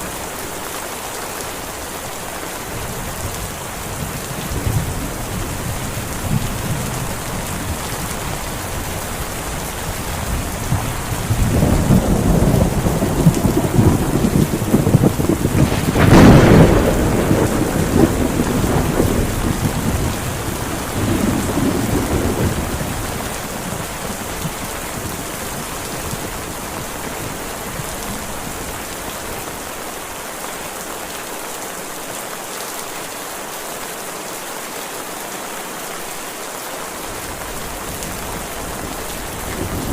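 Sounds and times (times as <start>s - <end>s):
heavy rain: 0.0s - 39.9s
thunder rumbling: 3.1s - 28.8s, 37.5s - 39.9s.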